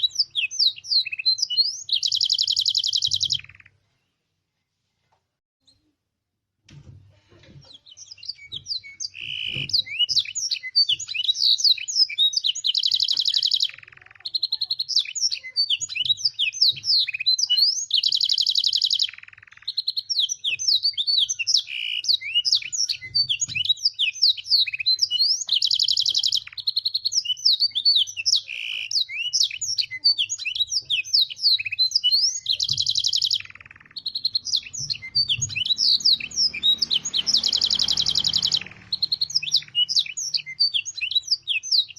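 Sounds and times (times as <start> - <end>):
canary singing: 0.0 - 3.8, 7.6 - 41.9.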